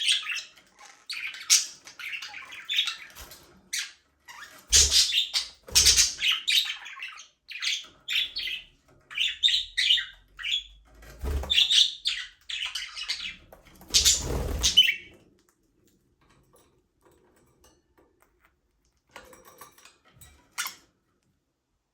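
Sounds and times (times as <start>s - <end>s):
budgerigars chirping and chattering: 0.0s - 15.1s, 20.6s - 20.8s.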